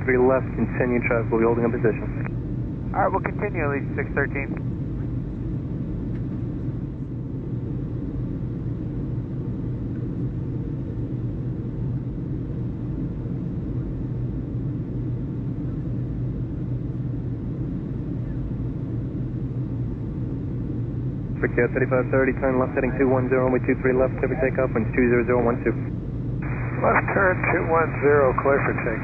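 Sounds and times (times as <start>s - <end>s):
low mechanical rumble with hum: 0.0s - 29.0s.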